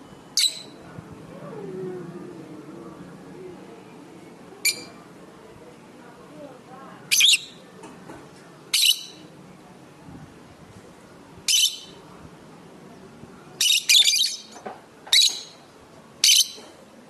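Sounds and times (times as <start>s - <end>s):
lovebirds shrill calls: 0.4s - 0.8s, 8.8s - 9.2s, 11.5s - 11.9s, 13.6s - 15.6s, 16.2s - 16.6s.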